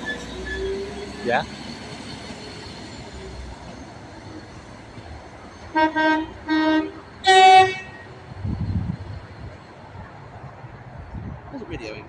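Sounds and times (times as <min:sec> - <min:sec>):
train horn blasts: 0:05.7 - 0:08.2.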